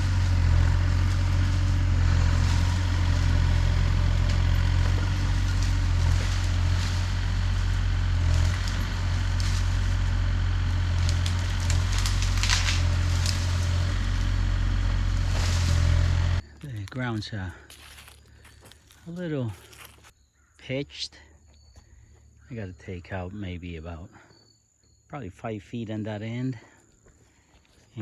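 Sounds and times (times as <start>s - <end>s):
heavy machine engine running: 0.0s - 16.9s
wood and brush cracking: 0.0s - 20.2s.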